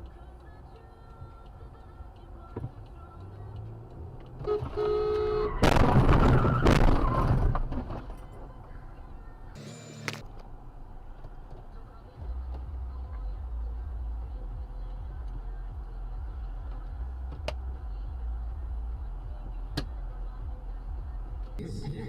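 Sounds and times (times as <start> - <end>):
road and engine rumble: 0.0 - 22.0
car horn: 4.4 - 6.8
loud vehicle crash: 5.5 - 8.6.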